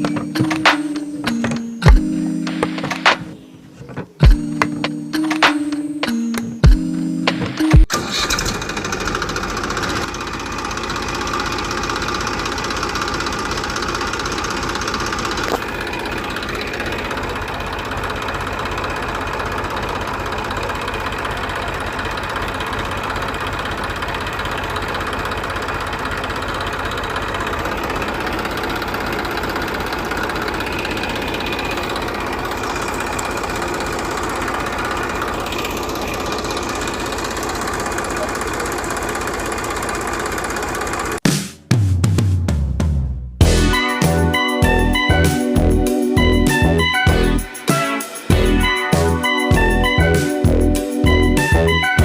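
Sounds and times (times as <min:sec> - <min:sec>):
small engine running: 0:07.9 - 0:41.2.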